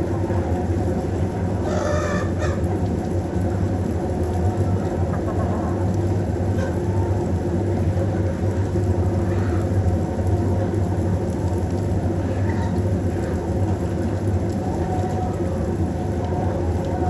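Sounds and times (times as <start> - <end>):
chicken call: 1.6 - 2.6.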